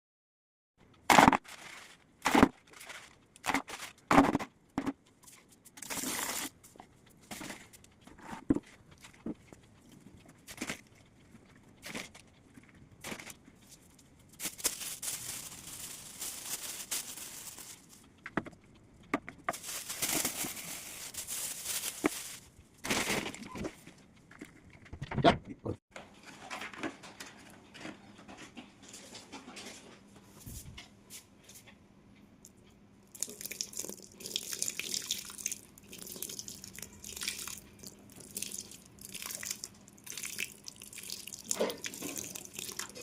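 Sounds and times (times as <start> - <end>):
scratchy rustling: 14.4 - 18.0, 19.5 - 22.5.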